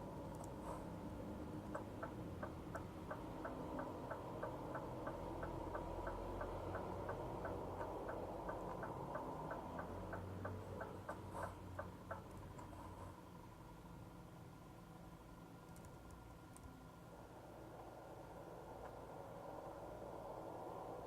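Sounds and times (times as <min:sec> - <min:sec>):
low engine hum: 0:00.0 - 0:21.0
turn signal ticking: 0:01.3 - 0:12.7.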